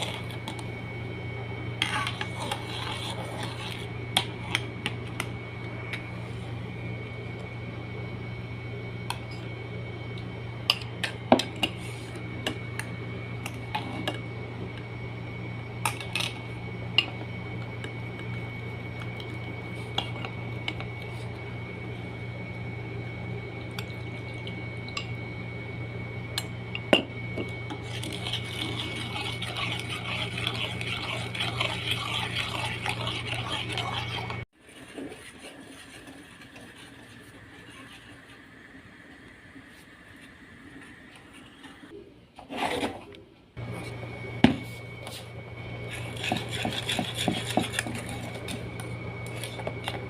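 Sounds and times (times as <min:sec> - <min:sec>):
constant low hum: 0:00.0 - 0:50.0.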